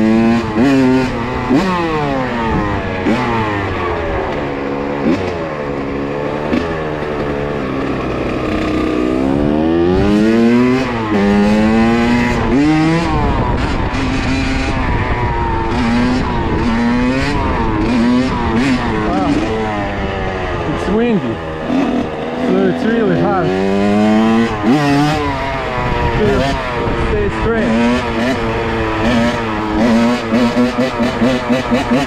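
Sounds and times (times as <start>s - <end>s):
dirt bike engine revving: 0.0s - 32.0s
wind rumbling on microphone: 9.2s - 22.4s, 23.6s - 31.9s.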